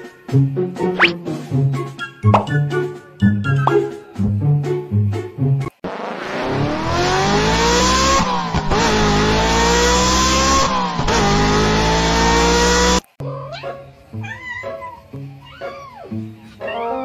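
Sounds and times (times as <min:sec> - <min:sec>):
car engine accelerating: 0:05.8 - 0:13.2.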